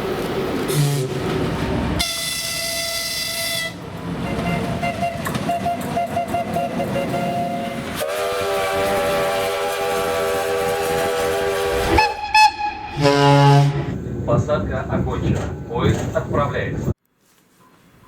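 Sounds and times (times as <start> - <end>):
train rumbling past: 0.0 - 17.0
train horn blast: 0.7 - 1.3, 2.0 - 13.9.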